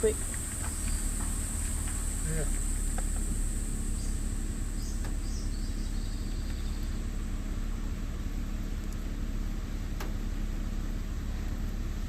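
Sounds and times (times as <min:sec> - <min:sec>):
high insect drone: 0:00.0 - 0:07.7
vehicle engine idling: 0:00.0 - 0:12.0.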